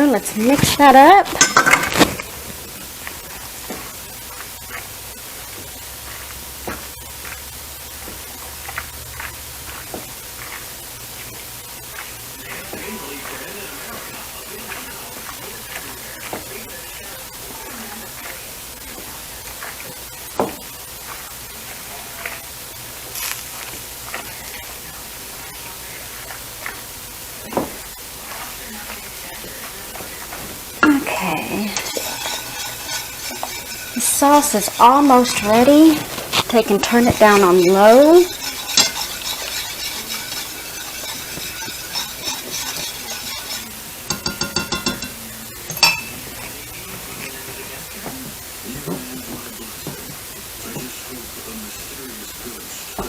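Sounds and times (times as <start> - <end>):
sauce sizzling in a pan: 0.0 - 53.0
steady hiss: 0.0 - 53.0
spoon scraping and clicking: 31.7 - 46.2
metal clinks: 44.1 - 46.2
ringing metal clank: 44.1 - 46.2.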